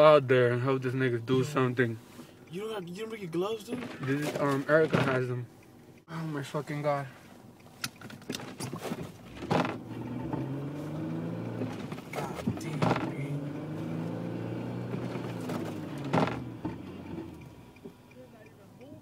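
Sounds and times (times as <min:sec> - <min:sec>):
car engine running: 0:00.0 - 0:19.0
sharp knocks: 0:16.0 - 0:16.8.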